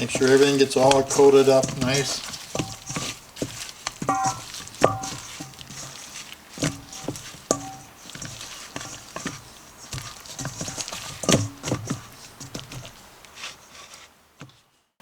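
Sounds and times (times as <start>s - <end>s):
chicken knocking against a bowl: 4.1s - 5.4s, 6.7s - 8.0s.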